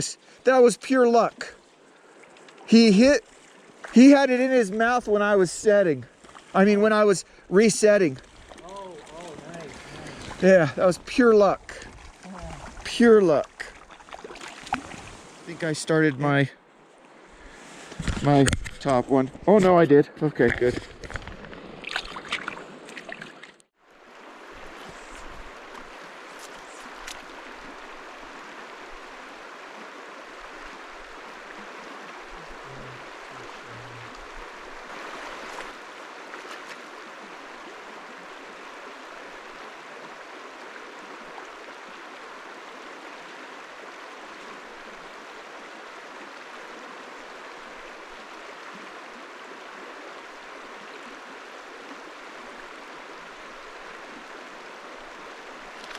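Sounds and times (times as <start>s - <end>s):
river water rushing over rocks: 23.9s - 55.9s.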